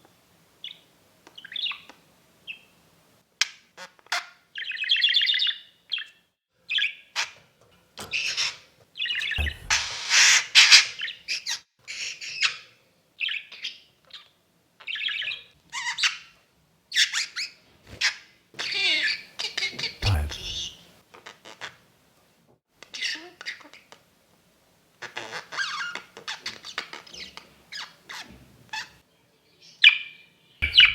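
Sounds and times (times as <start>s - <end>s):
low thump: 9.4s - 10.0s, 20.0s - 20.7s.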